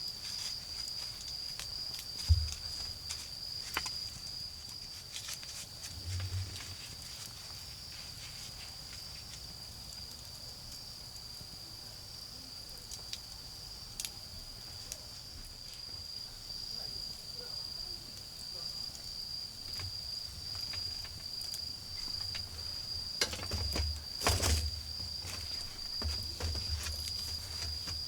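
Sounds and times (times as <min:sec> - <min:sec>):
wood fire crackling: 0:00.0 - 0:17.4, 0:18.0 - 0:28.0
insects chirring: 0:00.0 - 0:28.0.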